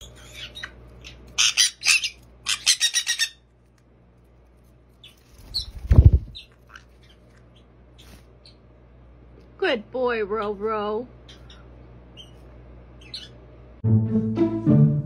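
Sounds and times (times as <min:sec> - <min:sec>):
parrots squawking: 0:00.0 - 0:03.5, 0:05.0 - 0:08.6, 0:11.2 - 0:13.4
bird wings fluttering: 0:05.1 - 0:06.5.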